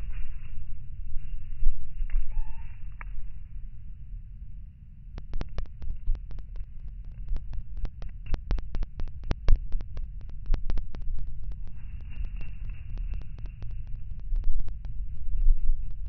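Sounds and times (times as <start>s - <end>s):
low steady rumble: 0.0s - 16.0s
sharp clicks or taps: 5.2s - 15.0s.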